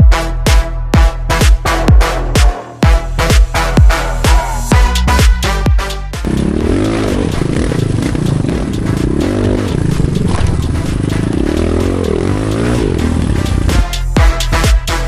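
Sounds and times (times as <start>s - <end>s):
dirt bike engine revving: 6.2s - 15.0s.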